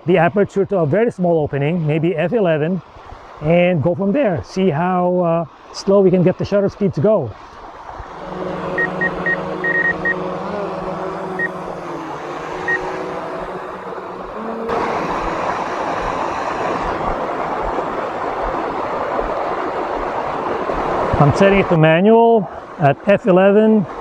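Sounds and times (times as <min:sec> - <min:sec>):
drone propellers humming: 0:07.4 - 0:21.8
loud rushing noise: 0:07.8 - 0:21.7
short high beeps: 0:08.8 - 0:10.2.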